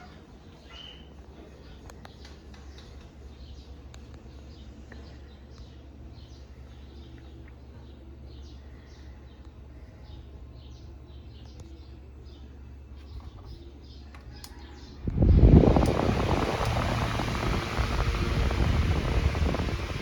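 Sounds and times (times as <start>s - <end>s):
faint bird chirps: 0.0s - 15.0s
steady low hum: 0.0s - 20.0s.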